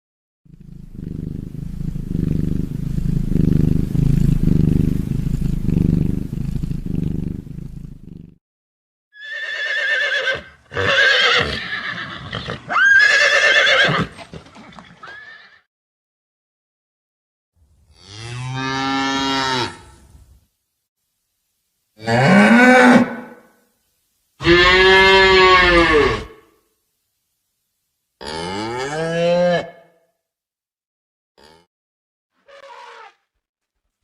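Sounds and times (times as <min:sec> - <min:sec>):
low pulsing rumble: 0:00.5 - 0:08.1
horse whinnying: 0:09.2 - 0:15.6, 0:24.4 - 0:26.4.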